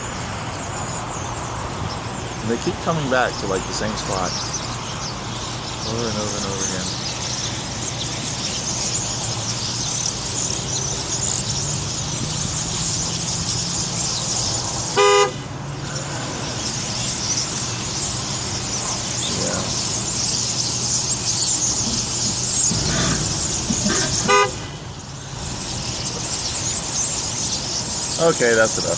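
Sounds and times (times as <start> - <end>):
birds chattering: 0.0 - 28.9
vehicle engine idling hum: 0.0 - 28.9
car horn honk: 14.9 - 15.5, 23.9 - 24.9.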